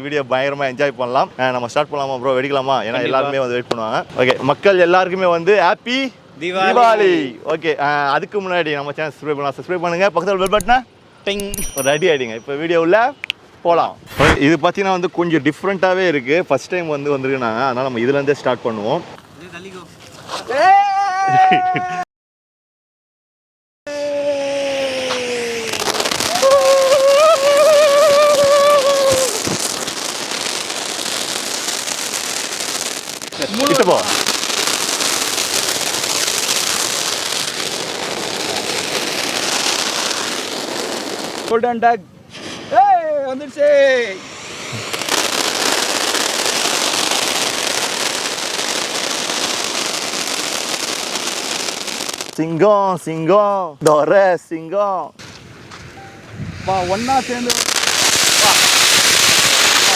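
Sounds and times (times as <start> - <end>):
firework whistle: 10.4 - 12.4, 14.1 - 14.4, 23.9 - 41.5, 42.3 - 42.8, 43.5 - 52.4, 55.2 - 59.9
sparks hissing and crackling: 10.4 - 12.4, 14.1 - 14.4, 24.6 - 41.6, 43.4 - 52.5, 56.4 - 59.9.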